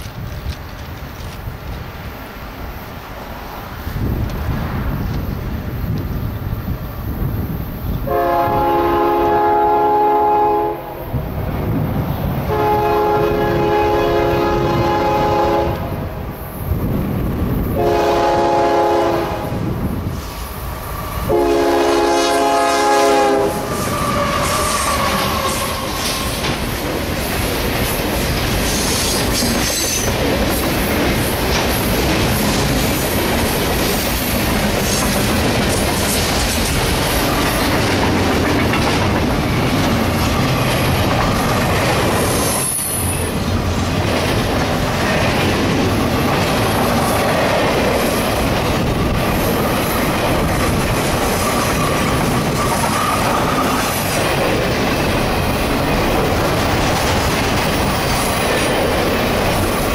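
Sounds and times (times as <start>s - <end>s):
clickety-clack of wheels on rail: 0.0s - 59.9s
train rumble: 0.0s - 59.9s
locomotive horn: 8.0s - 11.0s, 12.5s - 16.0s, 17.8s - 19.6s, 21.3s - 26.3s.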